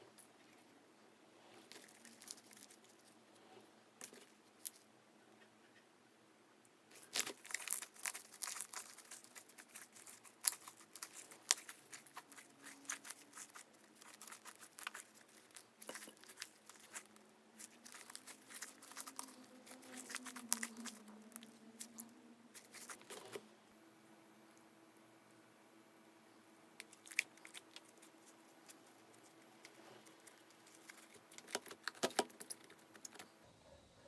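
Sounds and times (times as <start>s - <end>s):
slime squishing and crackling: 6.9s - 23.4s, 26.8s - 33.2s.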